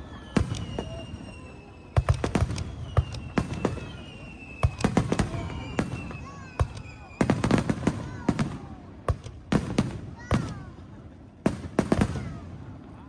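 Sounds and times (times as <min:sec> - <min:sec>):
high firework whistle gliding down: 0:00.0 - 0:08.4
fireworks bangs and crackles: 0:00.0 - 0:13.0.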